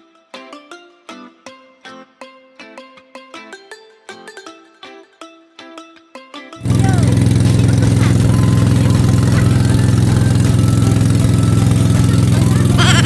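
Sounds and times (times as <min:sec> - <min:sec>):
plucked string music: 0:00.0 - 0:13.0
motorboat engine running: 0:06.6 - 0:13.0.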